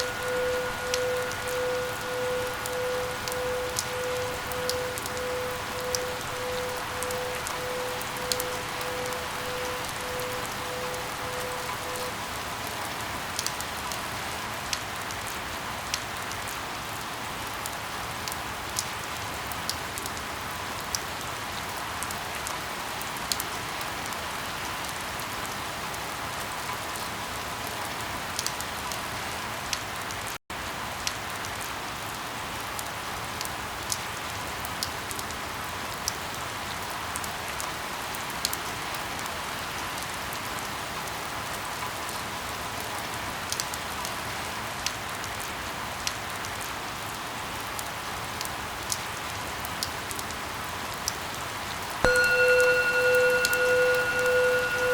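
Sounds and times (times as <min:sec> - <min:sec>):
raindrops ticking sharply: 0:00.0 - 0:12.1
steady rain falling: 0:00.0 - 0:54.9.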